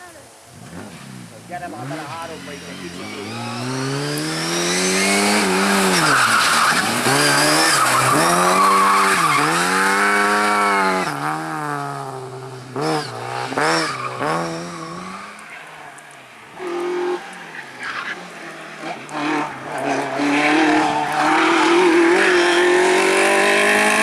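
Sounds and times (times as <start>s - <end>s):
car engine revving hard: 1.7s - 15.2s, 19.1s - 24.0s
tyres squealing: 5.1s - 10.8s.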